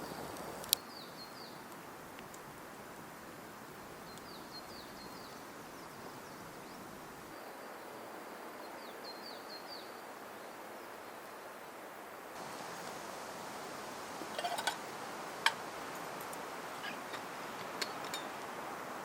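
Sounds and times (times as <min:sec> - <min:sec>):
rushing outdoor background: 0:12.4 - 0:19.0
small bird calling: 0:14.2 - 0:18.4.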